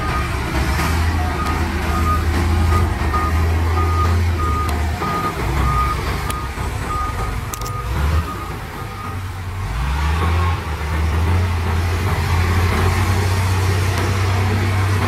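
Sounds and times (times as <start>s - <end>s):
diesel engine rumble: 0.0s - 15.0s
reverse alarm beeping: 1.3s - 9.2s.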